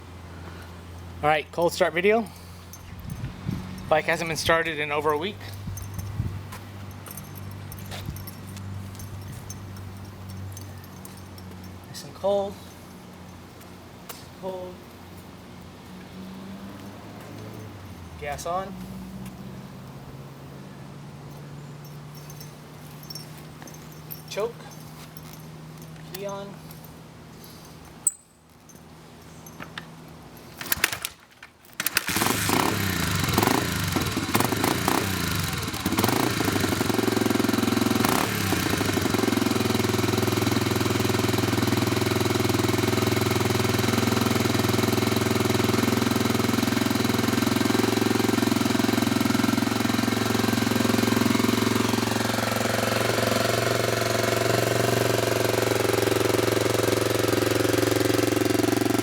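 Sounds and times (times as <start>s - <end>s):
motorcycle engine starting and idling: 2.8s - 11.7s, 30.6s - 59.0s.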